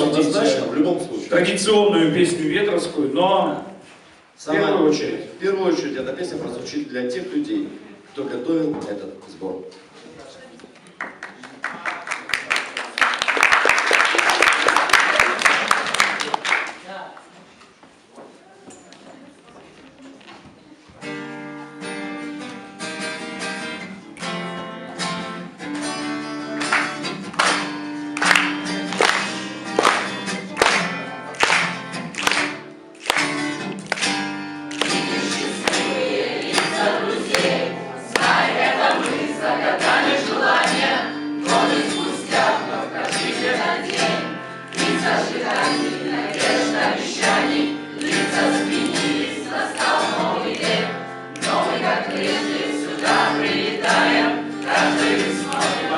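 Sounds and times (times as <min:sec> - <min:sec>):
strummed guitar: 0:21.0 - 0:55.9
group of voices singing: 0:34.8 - 0:55.9.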